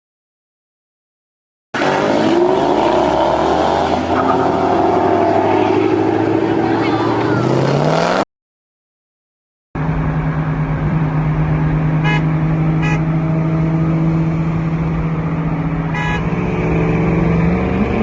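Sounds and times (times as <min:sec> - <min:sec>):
car engine running: 0:09.8 - 0:17.9.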